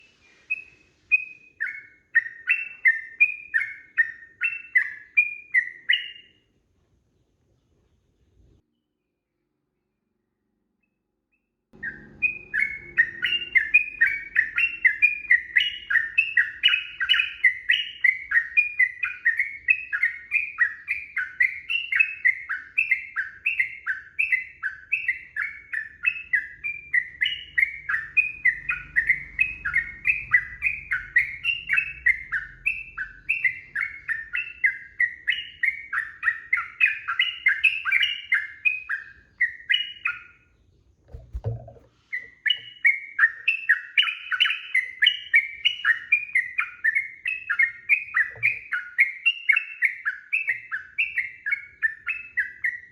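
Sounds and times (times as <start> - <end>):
bulbul chattering song: 11.8 - 40.5.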